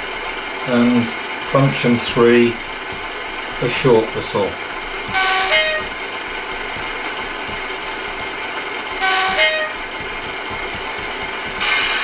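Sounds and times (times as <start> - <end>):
diesel locomotive engine idling: 0.0 - 12.0
two-tone horn: 5.1 - 6.8, 9.0 - 11.6.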